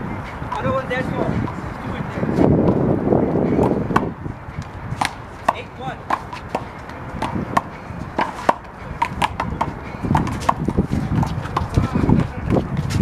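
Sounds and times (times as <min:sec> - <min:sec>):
handball slaps and bounces: 0:05.0 - 0:11.8.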